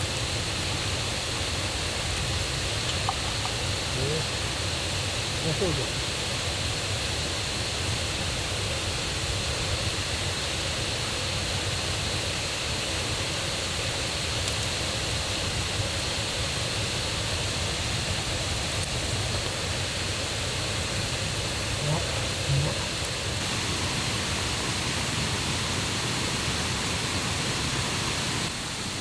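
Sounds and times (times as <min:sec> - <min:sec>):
river water rushing: 0:21.1 - 0:29.0.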